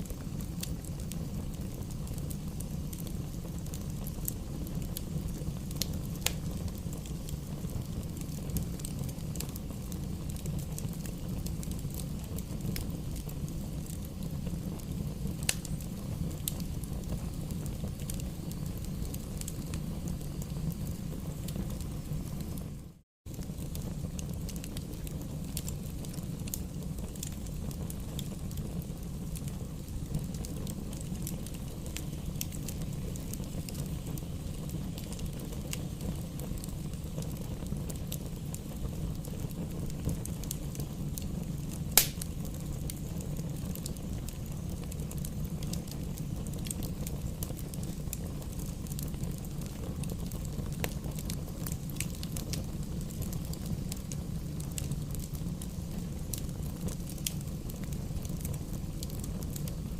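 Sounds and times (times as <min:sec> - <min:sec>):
fire crackling: 0:00.0 - 0:59.9
fire rumbling in fireplace: 0:00.0 - 0:59.9
sharp pop of fire: 0:41.9 - 0:42.4.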